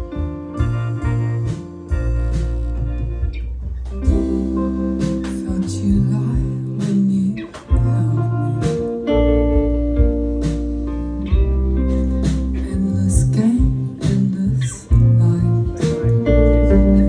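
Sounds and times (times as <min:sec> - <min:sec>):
guitars and bass: 0:00.0 - 0:17.0
drum and cymbal hits: 0:00.6 - 0:07.0.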